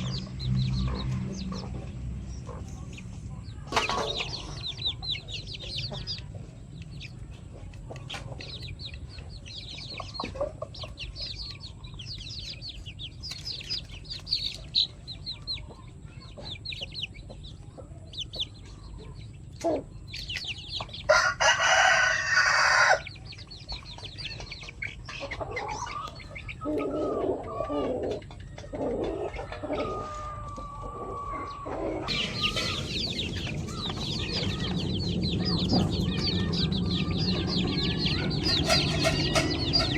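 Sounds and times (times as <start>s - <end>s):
chickens clucking: 0.0s - 39.9s
rooster crowing: 21.1s - 23.1s.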